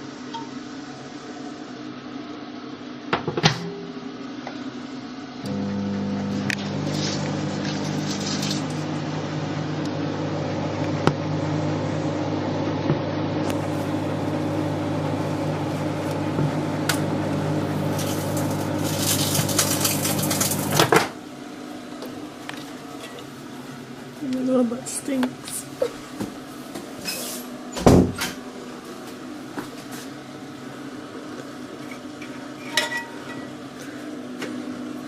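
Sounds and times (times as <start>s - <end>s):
microwave oven humming: 0.0s - 35.0s
cd sparking and crackling: 5.5s - 10.0s, 13.4s - 20.9s.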